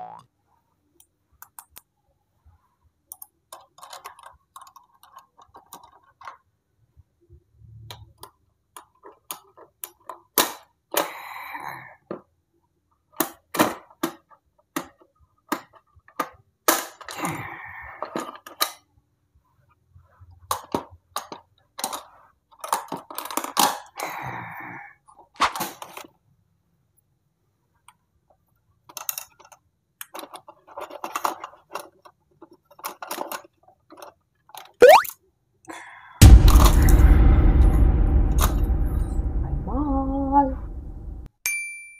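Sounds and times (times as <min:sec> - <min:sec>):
plastic toy clicks: 0:03.1 - 0:06.4
loud steady sound: 0:36.2 - 0:41.3.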